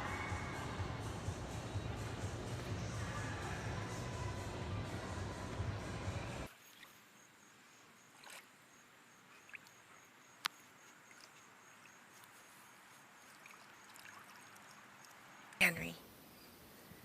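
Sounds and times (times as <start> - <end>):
faint steady hiss: 3.9 - 17.0
small ticks: 9.4 - 15.6.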